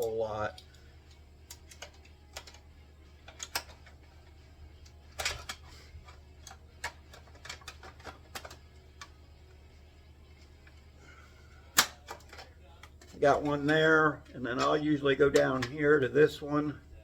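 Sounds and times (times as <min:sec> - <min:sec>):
clicks and knocks of metal parts: 0:00.0 - 0:09.2, 0:11.7 - 0:15.9
low steady hum: 0:00.0 - 0:17.0.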